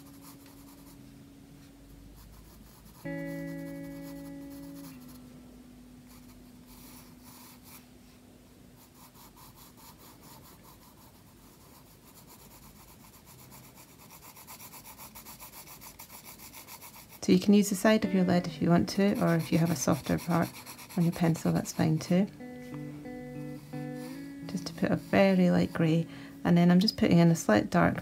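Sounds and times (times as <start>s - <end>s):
pencil shading on paper: 0.0s - 1.0s, 2.2s - 5.2s, 6.1s - 7.8s, 8.8s - 17.8s, 18.7s - 22.2s, 24.0s - 25.9s
held musical chord: 3.0s - 8.4s, 17.6s - 20.4s, 21.4s - 27.1s.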